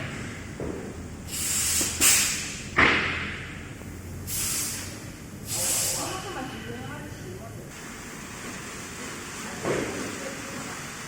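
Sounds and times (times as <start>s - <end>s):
press machine air hissing: 1.2s - 2.8s, 4.0s - 6.3s.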